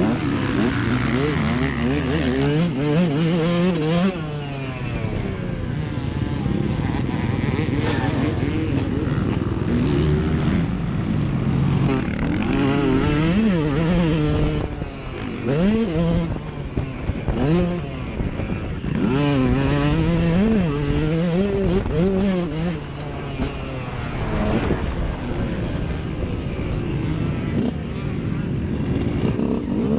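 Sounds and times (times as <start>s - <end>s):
motocross bike engines revving: 0.0s - 29.9s.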